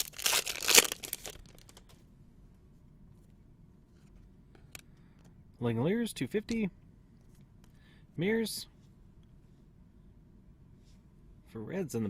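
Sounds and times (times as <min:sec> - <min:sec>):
card pack wrapper crinkling: 0:00.0 - 0:01.8.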